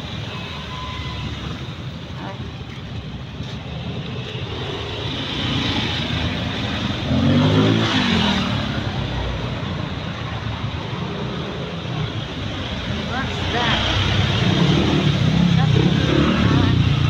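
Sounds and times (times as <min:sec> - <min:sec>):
road traffic: 0:00.0 - 0:17.0
vehicle passing close by: 0:04.4 - 0:09.6.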